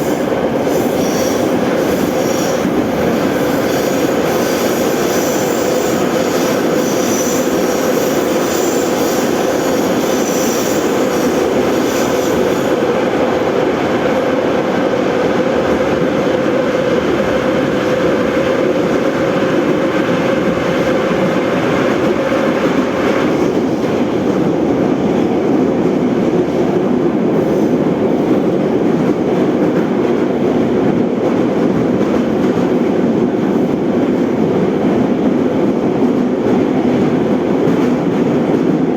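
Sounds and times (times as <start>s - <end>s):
train wheels rumbling: 0.0s - 38.9s
high wheel squeal: 3.4s - 12.7s.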